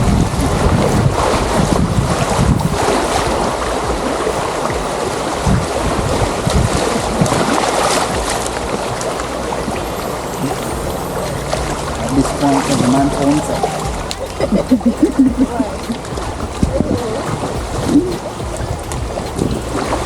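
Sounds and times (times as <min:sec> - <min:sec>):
river water rushing over rapids: 0:00.0 - 0:20.0
wind buffeting microphone: 0:00.0 - 0:20.0.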